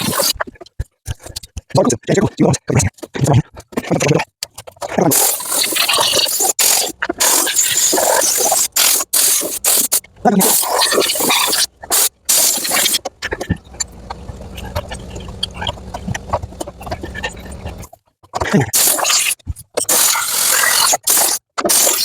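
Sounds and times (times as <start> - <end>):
compressed air hissing: 5.2 - 13.0
low steady hum: 12.7 - 17.9.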